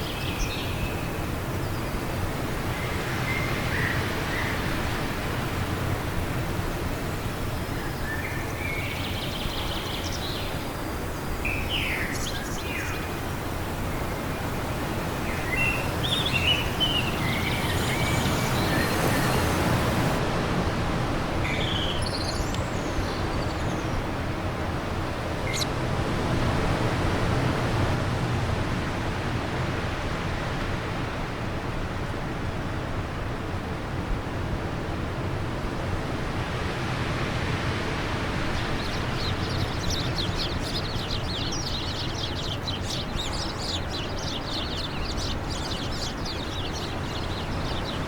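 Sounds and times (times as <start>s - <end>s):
small birds chirping: 0.0s - 20.2s, 21.5s - 24.1s, 25.5s - 25.7s, 38.1s - 48.0s
wind blowing in gusts: 0.0s - 48.0s.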